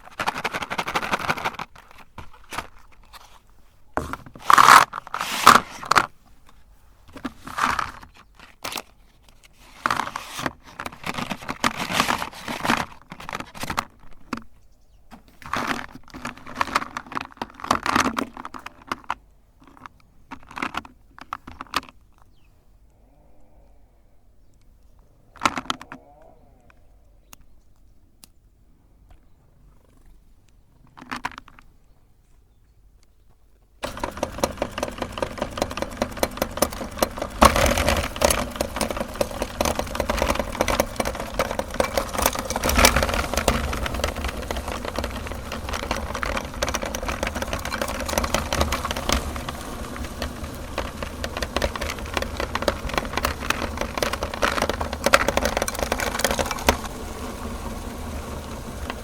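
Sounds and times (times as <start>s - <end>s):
rapid crackle of grinding chocolate: 0.0s - 3.0s, 33.8s - 59.0s
electric meat grinder running: 33.8s - 59.0s.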